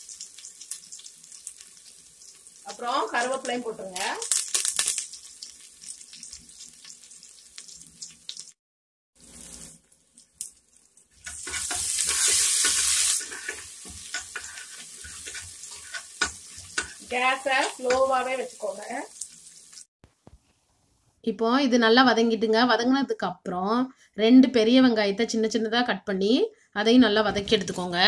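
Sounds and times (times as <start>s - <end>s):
spices sizzling in hot oil: 0.0s - 8.6s, 9.2s - 19.9s
spoon scraping a pot: 11.2s - 18.1s.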